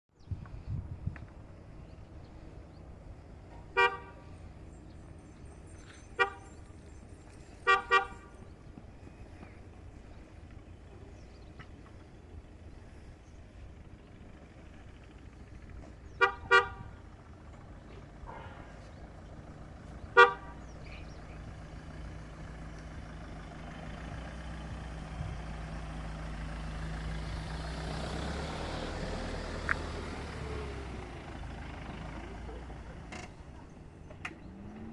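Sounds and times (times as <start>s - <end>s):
low vehicle engine rumble: 0.1s - 34.9s
car horn beeps: 3.7s - 4.2s, 6.0s - 6.7s, 7.6s - 8.5s, 16.2s - 17.0s, 20.1s - 20.6s.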